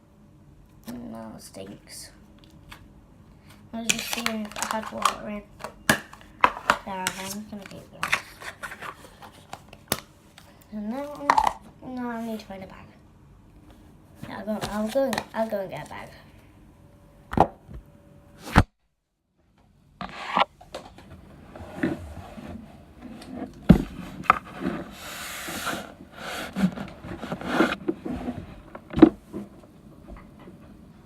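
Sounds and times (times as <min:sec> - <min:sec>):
rubbing and scraping: 0:06.8 - 0:09.6, 0:20.0 - 0:20.5, 0:21.3 - 0:29.6.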